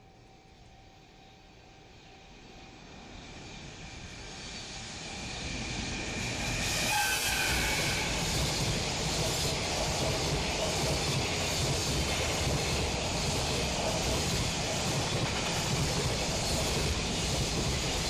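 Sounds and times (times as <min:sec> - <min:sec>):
freight train running past: 0:00.0 - 0:18.0.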